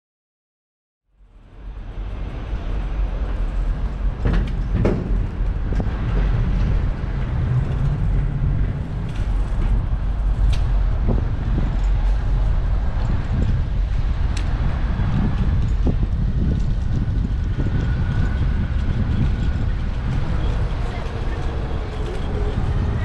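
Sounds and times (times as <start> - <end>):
wind and road noise: 1.1 - 23.0
sharp knocks and rattles: 3.1 - 13.6.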